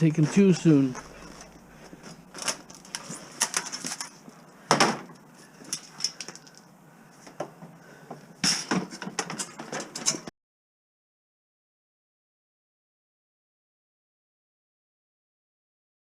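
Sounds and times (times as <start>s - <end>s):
hard objects clattering: 0.2s - 6.7s.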